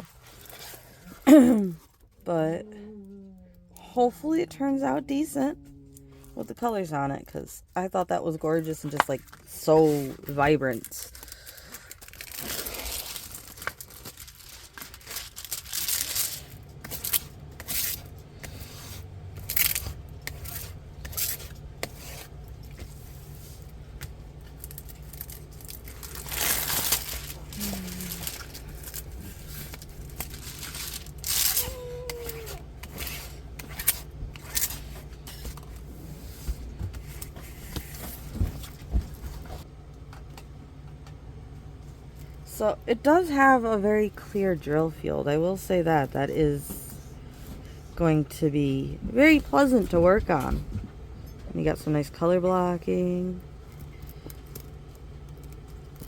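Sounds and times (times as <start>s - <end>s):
steady low hum: 0.0s - 56.0s
plastic packaging rustling: 8.9s - 39.7s.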